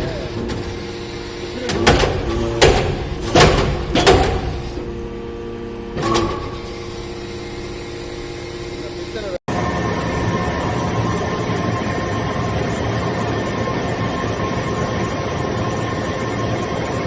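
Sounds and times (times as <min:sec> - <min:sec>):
loud press knocks: 0:00.0 - 0:05.0
machine hum: 0:00.0 - 0:17.0.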